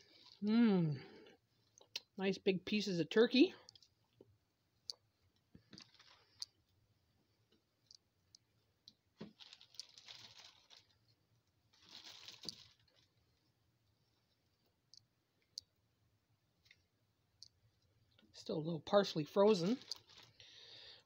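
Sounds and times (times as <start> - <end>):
soft rustling of food: 0.0 - 21.0.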